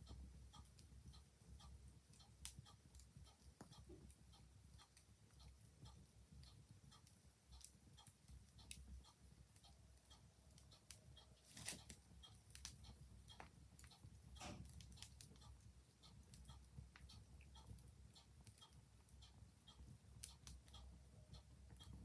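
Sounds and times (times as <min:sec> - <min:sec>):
faint clock ticking: 0:00.0 - 0:22.0
wood fire crackling: 0:11.4 - 0:18.6.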